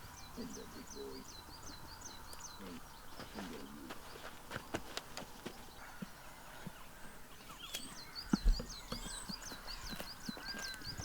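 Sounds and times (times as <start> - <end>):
small bird chirping: 6.7 - 11.0.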